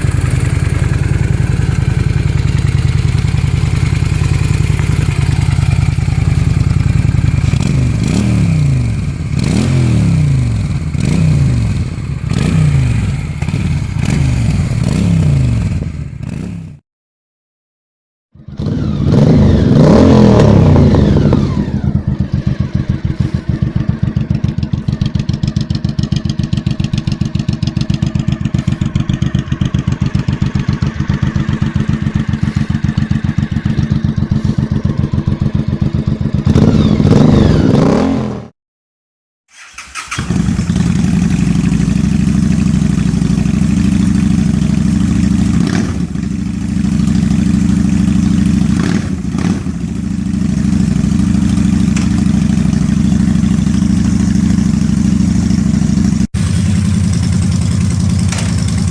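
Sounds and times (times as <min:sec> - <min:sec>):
second motorcycle engine idling: 0:00.0 - 0:08.1, 0:20.9 - 0:37.0, 0:40.0 - 0:58.9
motorcycle engine revving and idling: 0:00.0 - 0:16.8, 0:18.4 - 0:38.6, 0:39.5 - 0:58.9.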